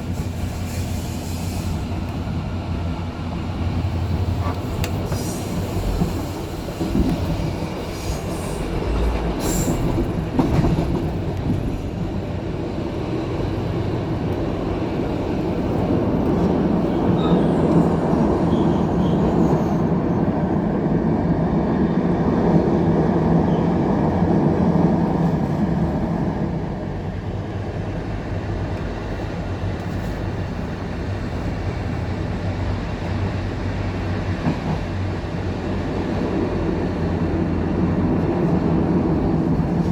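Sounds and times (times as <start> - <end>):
train wheels rumbling on rails: 0.0 - 39.9
sharp clicks of train wheels: 4.3 - 11.8.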